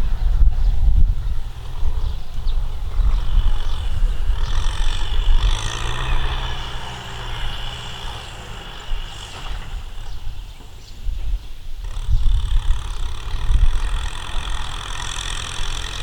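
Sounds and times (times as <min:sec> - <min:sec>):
tractor engine rumbling: 0:00.0 - 0:16.0.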